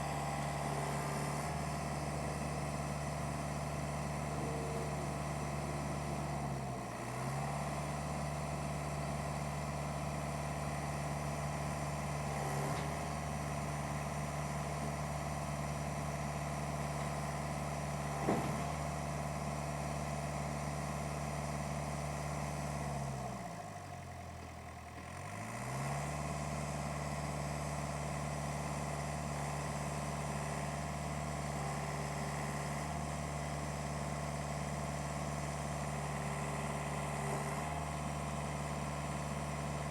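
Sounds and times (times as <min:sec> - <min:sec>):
truck engine running: 0:00.0 - 0:22.5.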